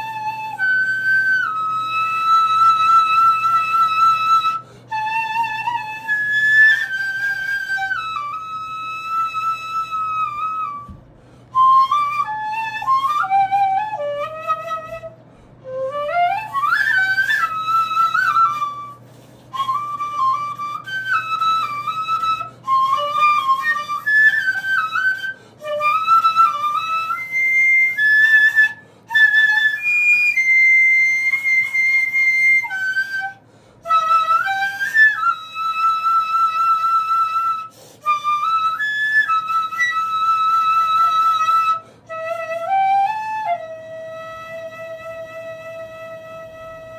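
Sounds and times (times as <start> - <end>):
stone flute playing: 0.0 - 46.9.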